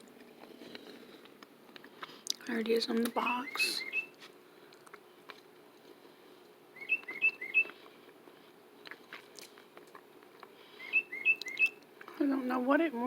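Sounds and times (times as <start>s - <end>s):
tufted titmouse whistling song: 3.0s - 4.2s, 6.8s - 7.8s, 10.7s - 11.8s.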